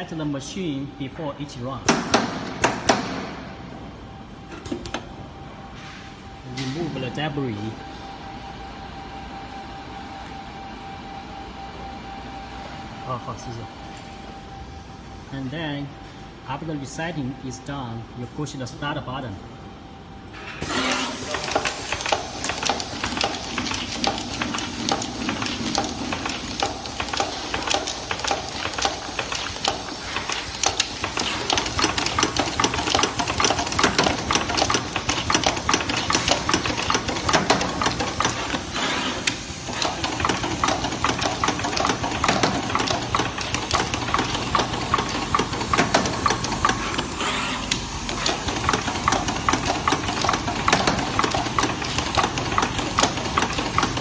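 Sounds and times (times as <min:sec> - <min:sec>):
rapid mechanical clicking: 0:21.2 - 0:54.0.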